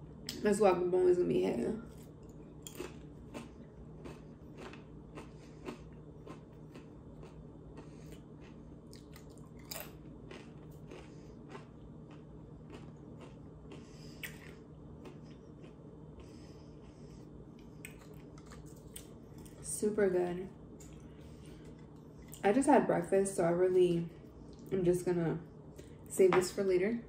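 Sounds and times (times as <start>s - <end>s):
low steady hum: 0.0s - 27.0s
person chewing crunchy chips: 1.9s - 19.7s.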